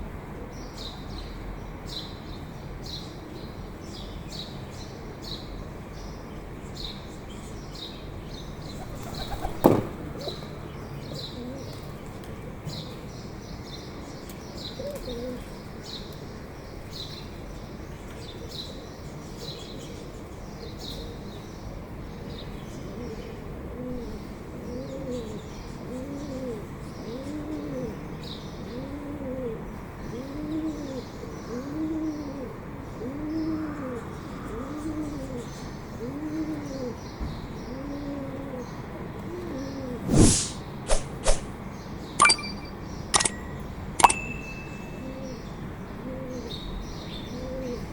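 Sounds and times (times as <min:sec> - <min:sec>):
sharp clicks: 0:42.2 - 0:44.6
faint high bird chirping: 0:42.2 - 0:47.9.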